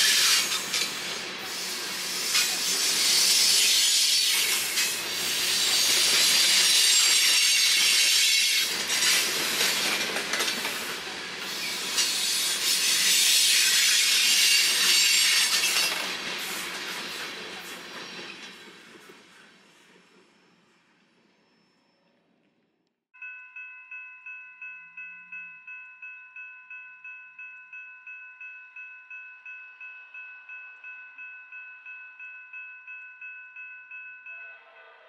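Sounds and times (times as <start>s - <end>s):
train wheels squealing on rails: 0.0s - 22.2s, 34.4s - 35.0s.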